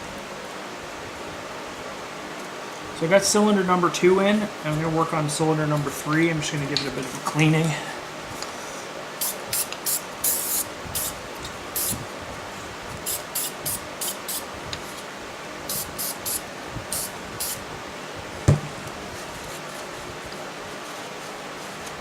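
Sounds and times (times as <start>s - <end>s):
aerosol spray hissing: 9.2s - 12.0s, 13.0s - 14.5s, 15.7s - 17.6s.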